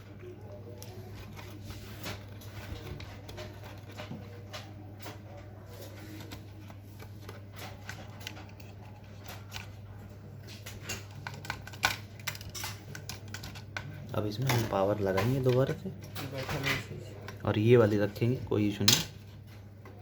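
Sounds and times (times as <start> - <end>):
scanner parts rustling and clicking: 0.1 - 20.0.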